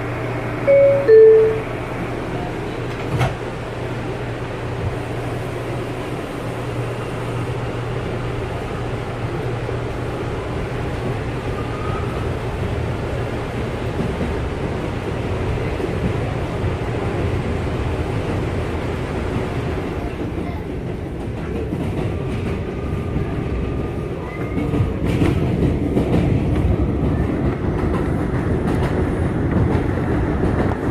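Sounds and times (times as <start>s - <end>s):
subway car running with hum: 0.0s - 30.9s
two-note door chime: 0.7s - 1.7s.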